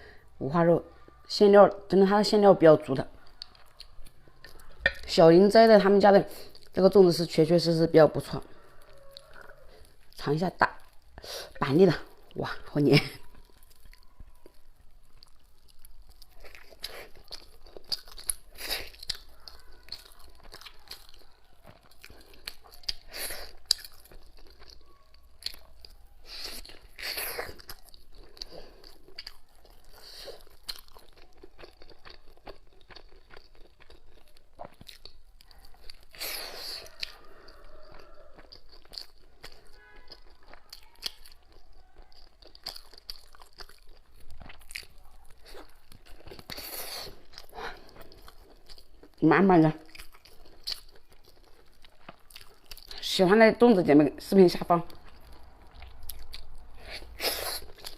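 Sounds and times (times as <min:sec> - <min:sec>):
close chewing and mouth sounds: 0:00.0 - 0:57.9.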